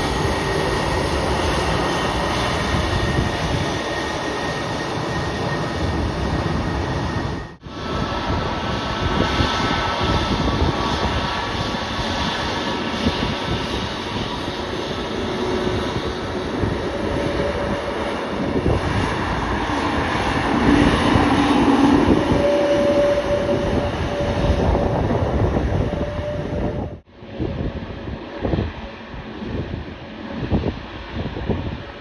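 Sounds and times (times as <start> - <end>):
jet engines roaring: 0.0 - 32.0
humming tone: 14.8 - 27.0.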